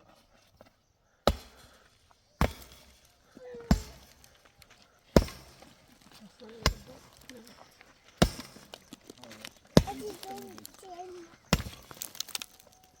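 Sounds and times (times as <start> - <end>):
hand tool knocking on hard material: 3.6 - 4.3, 6.5 - 7.5, 8.2 - 9.0, 9.8 - 10.6.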